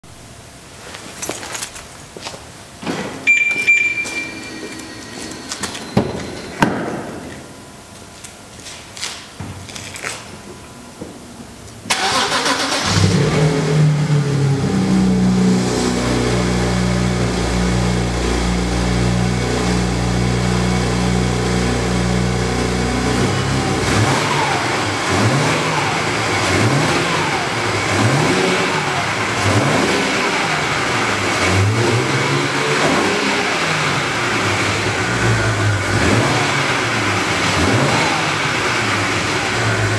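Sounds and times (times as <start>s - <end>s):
car engine idling and revving: 11.9s - 39.9s.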